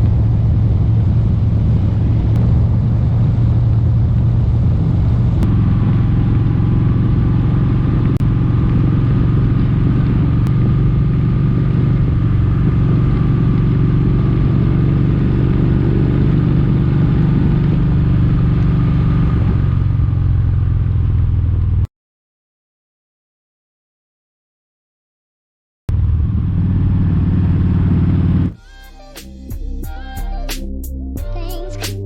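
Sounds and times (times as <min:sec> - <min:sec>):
wind noise: 0:00.0 - 0:20.2
motorcycle engine cruising: 0:00.0 - 0:21.9, 0:25.9 - 0:28.6
road noise: 0:00.0 - 0:21.9, 0:25.9 - 0:32.0.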